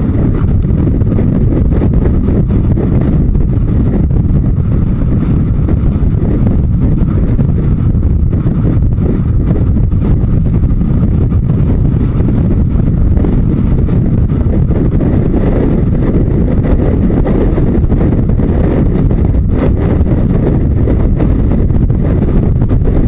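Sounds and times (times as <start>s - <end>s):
motorcycle engine running: 0.0s - 23.0s
wind rush over microphone: 0.0s - 23.0s.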